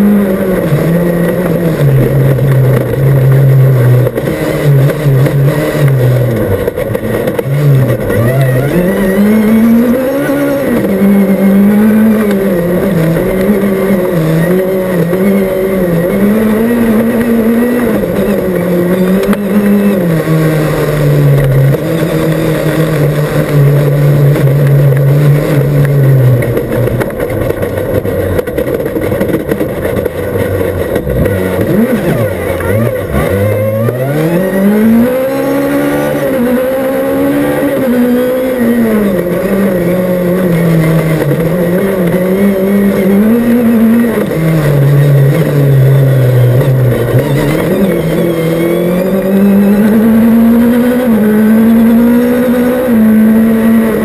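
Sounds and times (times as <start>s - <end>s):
car engine revving: 0.0s - 54.0s
tyre and road noise: 0.0s - 54.0s.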